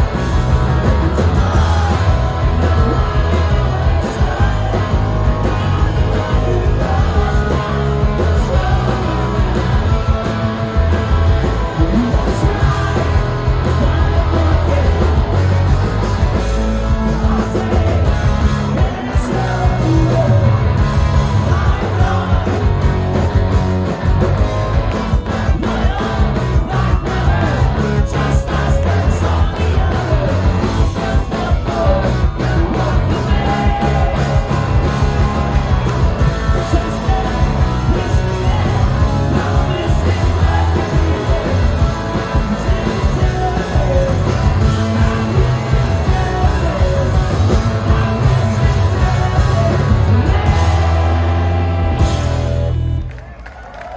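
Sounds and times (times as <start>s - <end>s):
live rock band playing: 0.0s - 53.3s.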